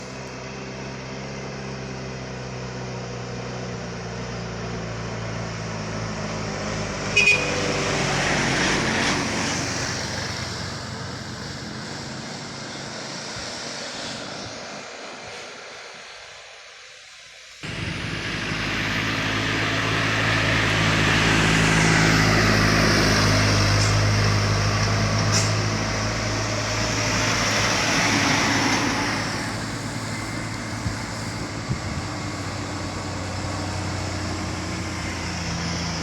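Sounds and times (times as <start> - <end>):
heavy truck engines at full throttle: 0.0 - 16.6, 17.6 - 36.0
high-pitched horn toot: 7.1 - 7.7.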